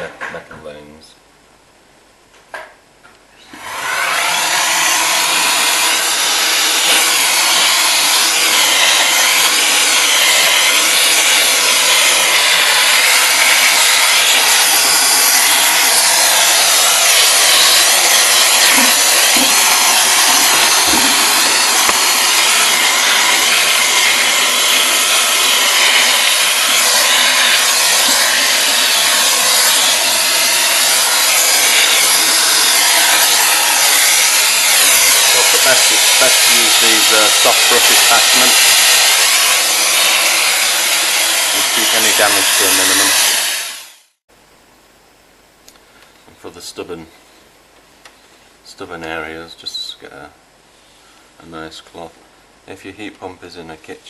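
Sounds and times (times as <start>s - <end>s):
vacuum cleaner running: 3.4s - 44.2s.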